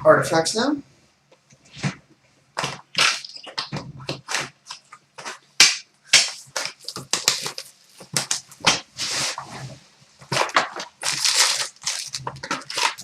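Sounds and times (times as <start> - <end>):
plastic wrapping crinkling and tearing: 2.6 - 5.4, 6.1 - 9.4, 10.2 - 13.0.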